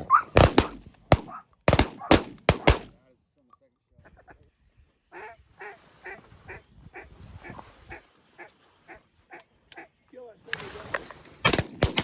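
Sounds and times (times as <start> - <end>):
sharp crack: 0.3 - 3.0, 11.3 - 12.0
duck quacking: 5.1 - 9.9.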